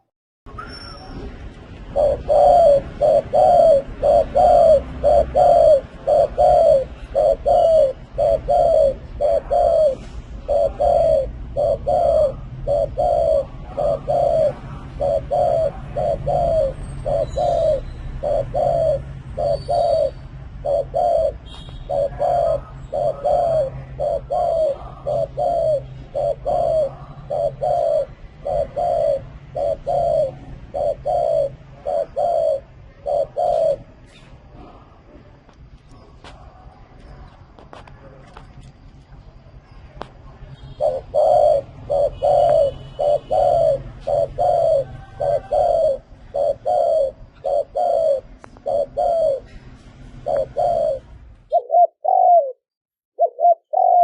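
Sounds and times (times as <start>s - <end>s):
dove cooing: 1.8s - 35.3s, 40.6s - 52.6s, 53.2s - 54.0s.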